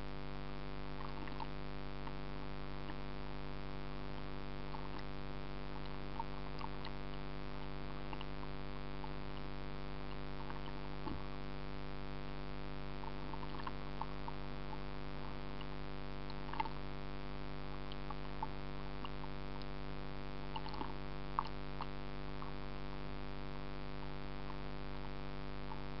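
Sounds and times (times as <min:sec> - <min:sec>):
steady low hum: 0:00.0 - 0:26.0
faint ticks and clicks: 0:00.9 - 0:23.2, 0:24.1 - 0:26.0.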